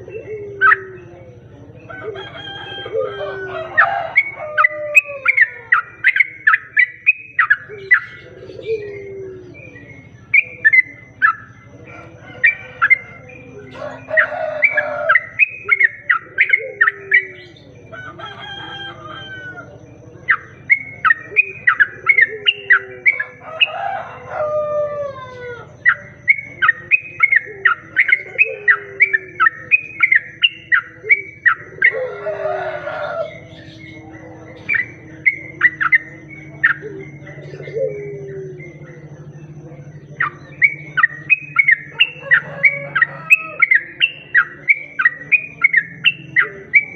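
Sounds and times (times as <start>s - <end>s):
harsh bird calls: 0.0s - 46.9s
bird song bright chirping notes: 4.1s - 11.7s.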